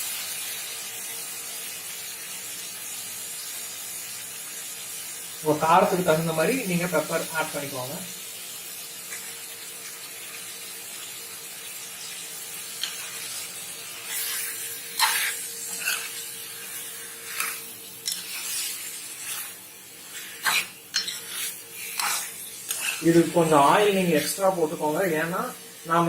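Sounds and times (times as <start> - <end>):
chicken sizzling in oil: 0.0 - 26.0
spoon scraping a pan: 14.0 - 23.4.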